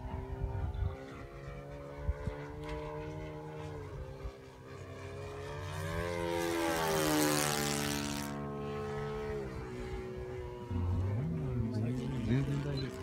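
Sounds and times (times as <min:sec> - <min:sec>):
model airplane engine running: 0:00.0 - 0:13.0.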